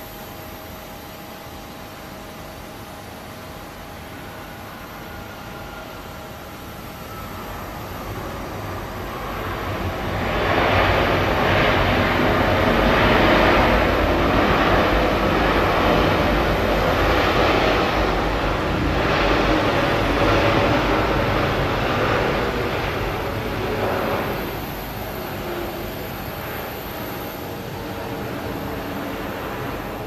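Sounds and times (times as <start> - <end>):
jet airliner landing: 0.0 - 30.0.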